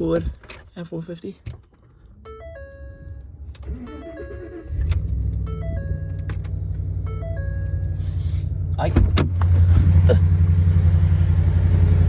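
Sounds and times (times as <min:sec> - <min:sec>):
electronic dashboard chime: 0:02.3 - 0:06.4, 0:07.0 - 0:08.0
truck engine cranking and running: 0:03.2 - 0:08.0.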